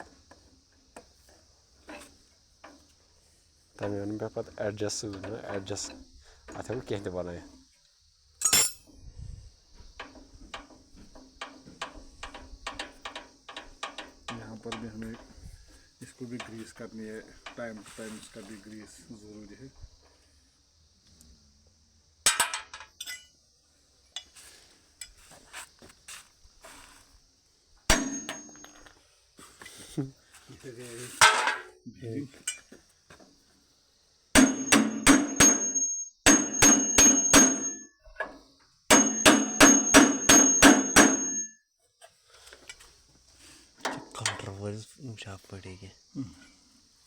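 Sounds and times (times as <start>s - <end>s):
hammer striking metal: 27.9s - 28.7s, 34.4s - 37.9s, 38.9s - 41.5s.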